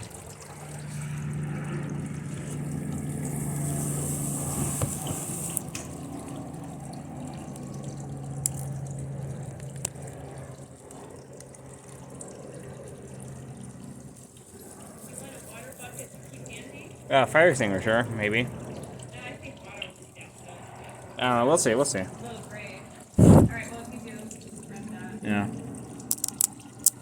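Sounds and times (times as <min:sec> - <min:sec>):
steady low hum: 0:00.0 - 0:11.2, 0:23.2 - 0:24.4.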